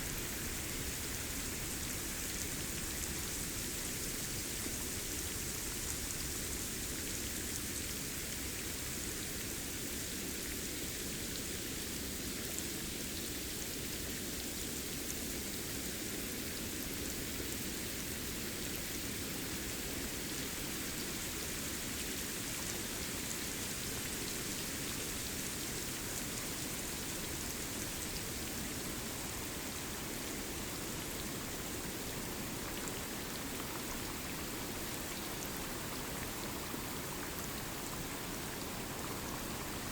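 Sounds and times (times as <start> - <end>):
rain on foliage: 20.2 - 39.9.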